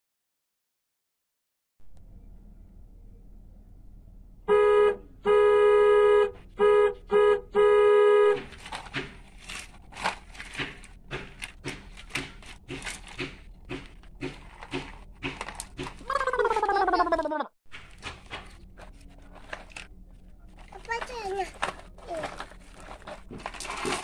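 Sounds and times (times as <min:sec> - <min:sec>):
toy car horn honking: 0:04.5 - 0:08.5.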